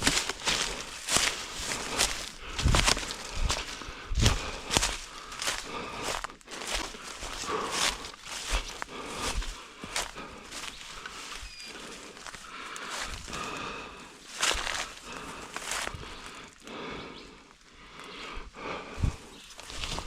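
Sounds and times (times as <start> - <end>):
leaves and branches swishing: 0.0 - 13.5
footsteps through undergrowth: 0.0 - 16.7, 19.0 - 20.0.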